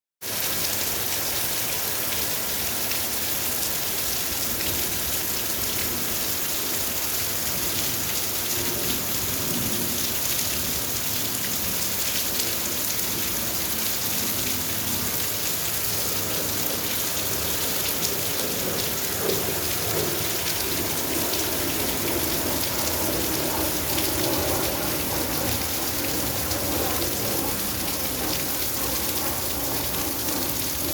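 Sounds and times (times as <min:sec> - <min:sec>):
raindrops striking surfaces: 0:00.2 - 0:30.9
steady rain hiss: 0:00.2 - 0:30.9.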